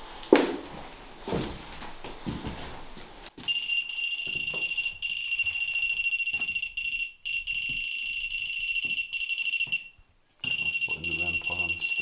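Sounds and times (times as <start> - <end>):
handling knocks: 0.0 - 3.4
high-pitched electronic alarm tone: 3.5 - 12.0.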